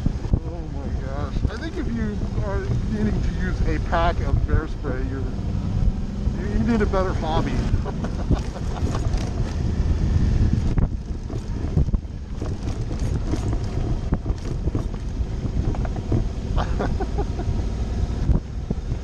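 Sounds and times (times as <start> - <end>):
motorcycle engine running: 0.0 - 19.0
knocks and rattles: 7.9 - 9.7, 10.5 - 17.2.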